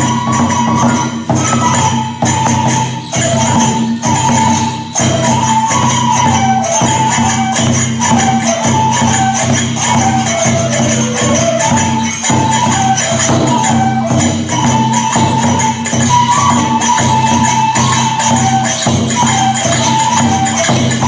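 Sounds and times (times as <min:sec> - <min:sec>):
drum beats: 0:00.0 - 0:21.0
hand cymbals jingling: 0:00.0 - 0:21.0.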